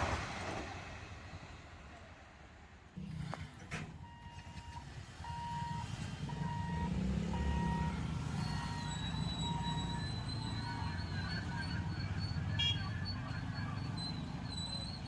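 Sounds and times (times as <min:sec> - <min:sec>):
electronic warning beeps: 0:04.0 - 0:15.0.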